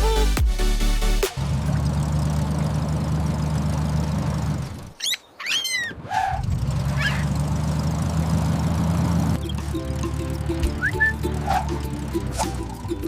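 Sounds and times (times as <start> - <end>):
pet squeaky calls: 5.0 - 6.4, 7.0 - 7.2.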